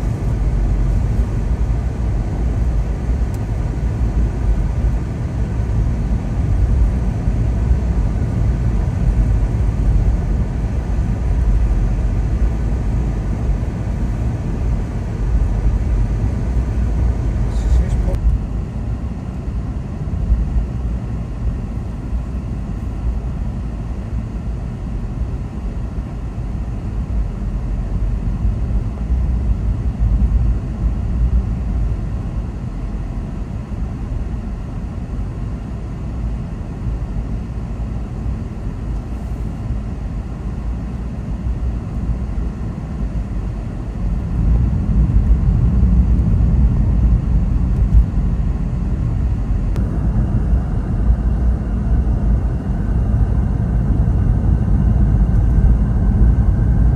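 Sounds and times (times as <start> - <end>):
car engine rumble: 0.0 - 22.6.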